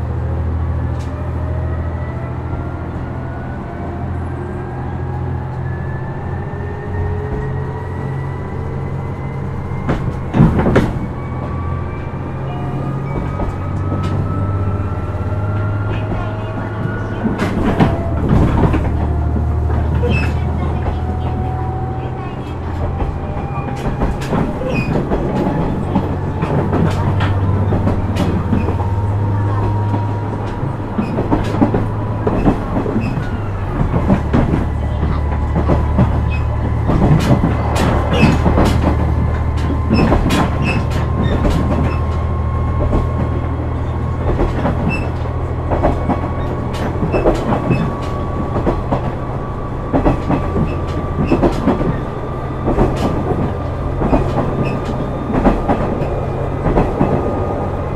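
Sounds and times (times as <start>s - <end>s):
diesel railcar engine drone: 0.0s - 57.9s
rail-joint clicks: 12.4s - 57.9s.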